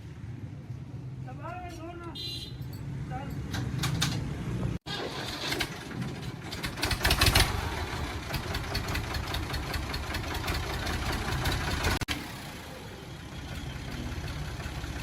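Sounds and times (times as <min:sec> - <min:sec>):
tractor diesel engine running: 0:04.9 - 0:15.0.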